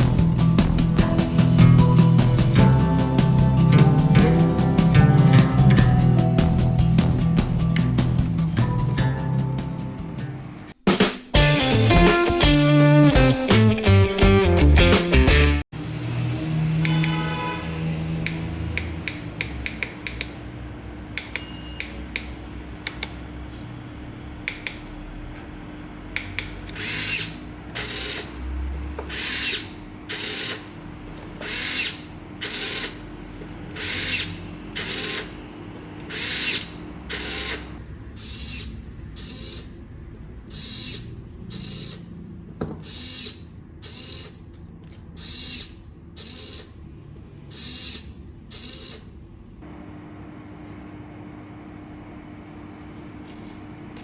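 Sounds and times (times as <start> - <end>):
short mechanical whirring bursts: 26.6 - 28.4, 29.1 - 30.7, 31.3 - 33.0, 33.7 - 35.4, 36.0 - 39.8, 40.4 - 46.8, 47.4 - 49.2.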